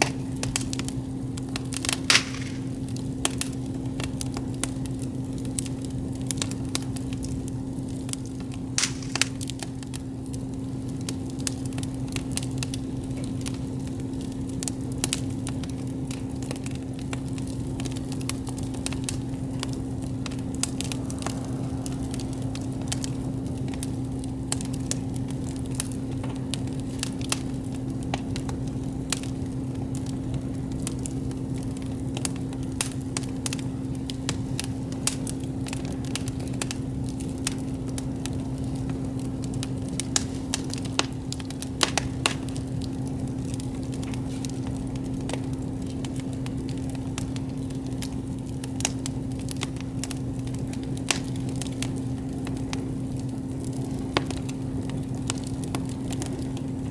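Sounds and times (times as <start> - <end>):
campfire crackling and popping: 0.0 - 56.9
low hum: 19.3 - 25.6.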